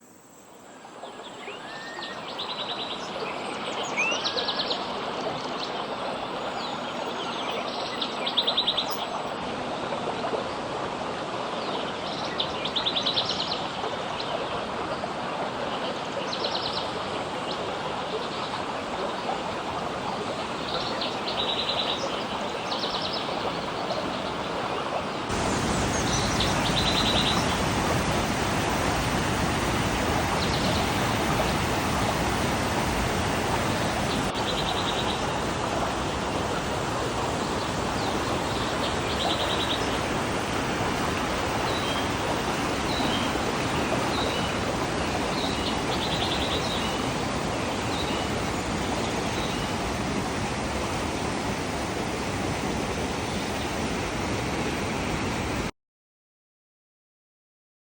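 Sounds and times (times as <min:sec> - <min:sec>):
river water flowing: 0:00.0 - 0:55.7
bird chirps and trills: 0:25.4 - 0:32.4.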